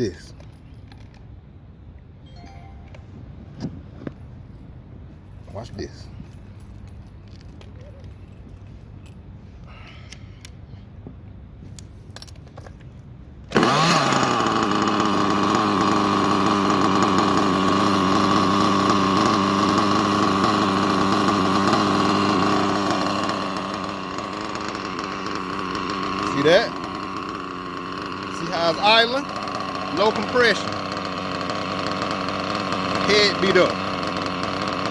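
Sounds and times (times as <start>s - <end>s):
small model engine running: 13.5s - 34.9s.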